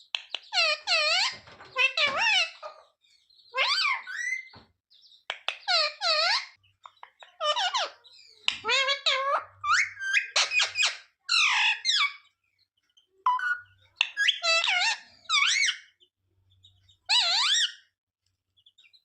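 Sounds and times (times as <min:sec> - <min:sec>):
parrot calling: 0:00.4 - 0:02.8, 0:03.5 - 0:04.5, 0:05.5 - 0:06.6, 0:07.2 - 0:12.2, 0:13.3 - 0:15.9, 0:17.1 - 0:17.9.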